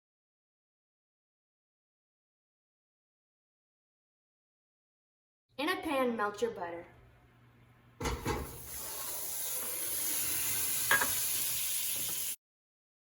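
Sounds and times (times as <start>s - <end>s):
butter sizzling in a pan: 8.5s - 12.4s.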